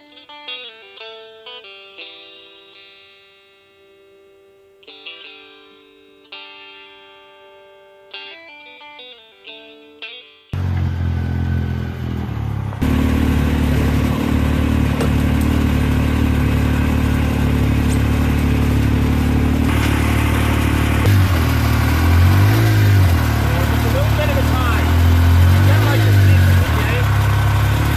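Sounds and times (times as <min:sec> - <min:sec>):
three-cylinder engine running: 0:10.6 - 0:27.9.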